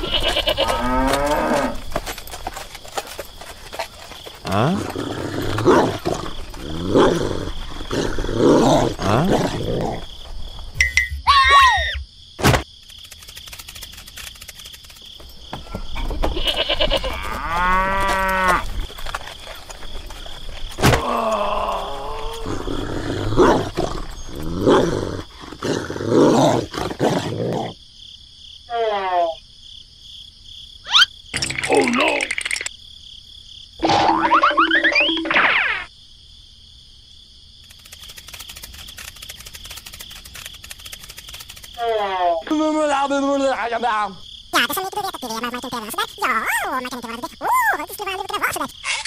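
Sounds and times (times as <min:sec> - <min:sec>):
dog barking and growling: 0:04.4 - 0:10.1, 0:22.0 - 0:27.8.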